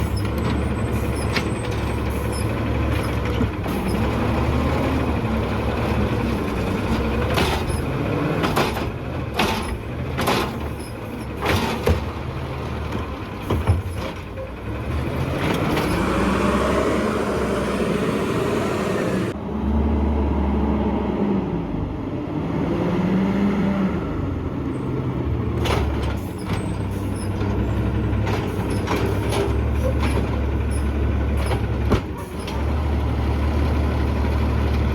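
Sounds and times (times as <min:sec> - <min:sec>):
garbage truck engine revving: 0:00.0 - 0:21.3
clanks from bins and lifting gear: 0:06.2 - 0:16.2, 0:25.5 - 0:32.7.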